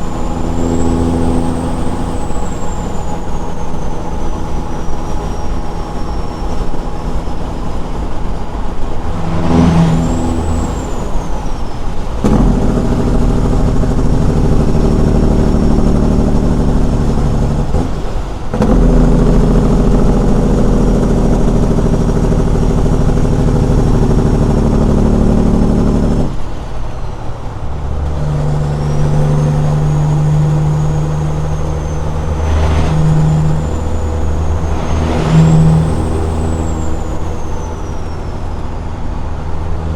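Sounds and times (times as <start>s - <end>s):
high whine: 0.0s - 12.6s, 28.7s - 38.8s
diesel truck engine under load: 0.0s - 39.9s.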